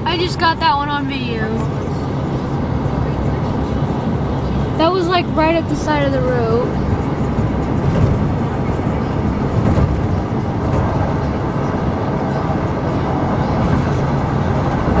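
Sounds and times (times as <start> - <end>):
road and engine noise inside truck: 0.0 - 15.0.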